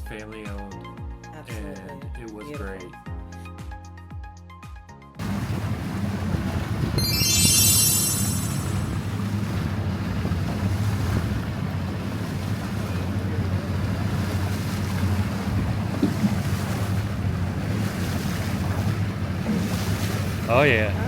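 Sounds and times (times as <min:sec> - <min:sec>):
wind buffeting microphone: 0:05.2 - 0:07.0, 0:08.9 - 0:21.0
boat motor running: 0:05.2 - 0:07.5, 0:08.5 - 0:21.0
water rushing: 0:05.2 - 0:21.0.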